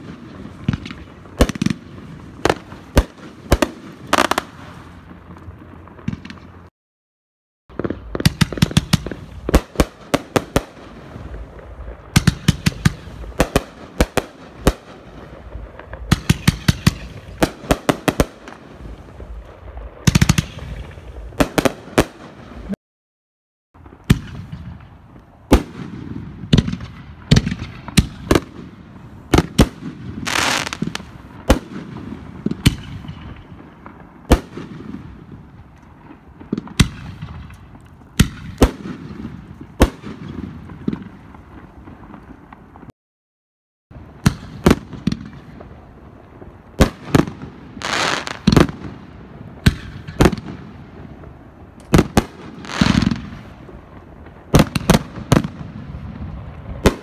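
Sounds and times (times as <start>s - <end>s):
firework pops and bangs: 0.0s - 6.7s, 7.7s - 22.8s, 23.8s - 42.9s, 44.0s - 57.0s
firework hiss: 30.2s - 33.1s, 46.8s - 48.7s.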